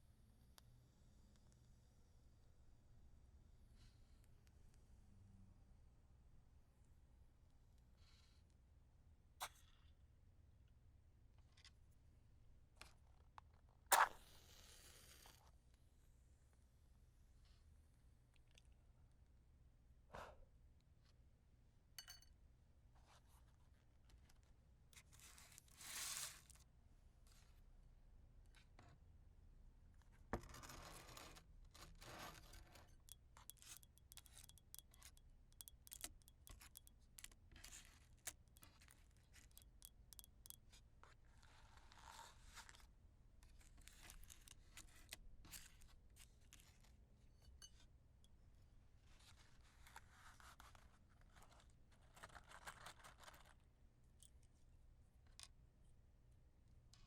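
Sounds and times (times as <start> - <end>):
matches striking: 33.0 - 37.0, 39.5 - 40.6.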